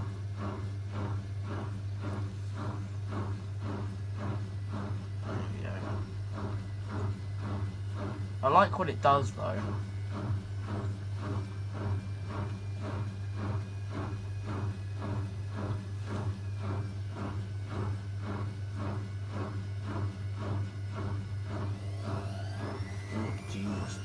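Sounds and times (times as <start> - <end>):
drain pump humming: 0.0 - 24.0
rising motor whine: 21.6 - 24.0.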